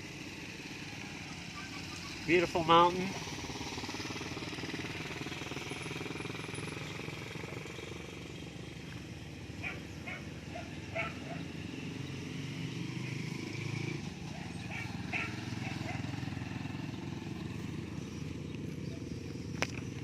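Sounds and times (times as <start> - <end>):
vehicle engine running: 0.0 - 20.0
animal calls: 1.0 - 2.4, 9.6 - 11.7, 14.3 - 16.8.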